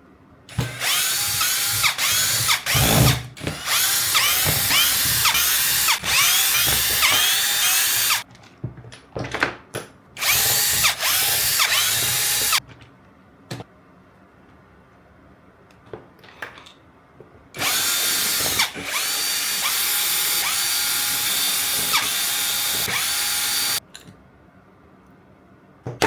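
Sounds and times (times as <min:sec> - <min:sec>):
power drill running: 0:00.5 - 0:08.2, 0:10.2 - 0:12.6, 0:17.6 - 0:23.8.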